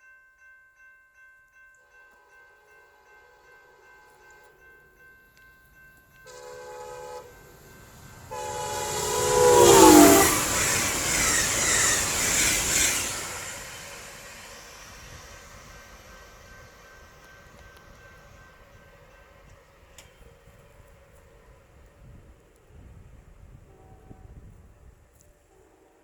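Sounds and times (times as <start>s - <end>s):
train horn: 6.2s - 14.1s, 23.4s - 26.0s
train rushing by: 6.2s - 25.0s.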